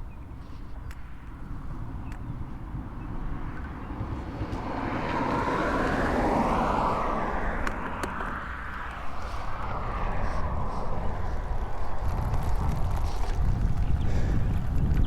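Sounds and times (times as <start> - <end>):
steady low rumble: 0.0 - 15.0
vehicle passing by: 2.8 - 14.8.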